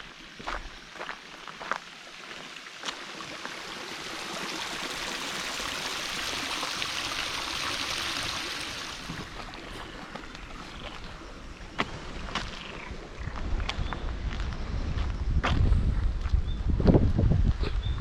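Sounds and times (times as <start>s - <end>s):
stream water rushing: 0.0s - 12.6s.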